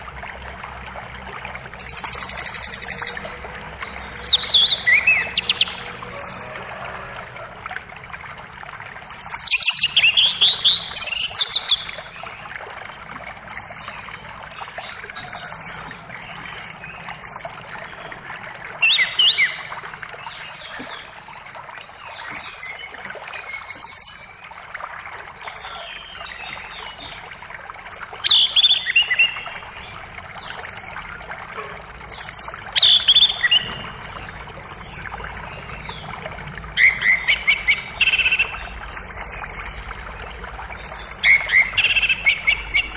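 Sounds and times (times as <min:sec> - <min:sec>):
forest creek rushing: 0:00.0 - 0:42.9
songbird calling: 0:03.8 - 0:06.7, 0:13.5 - 0:18.1, 0:18.8 - 0:21.1, 0:27.9 - 0:31.0, 0:32.0 - 0:36.1, 0:36.7 - 0:39.9, 0:40.8 - 0:42.9.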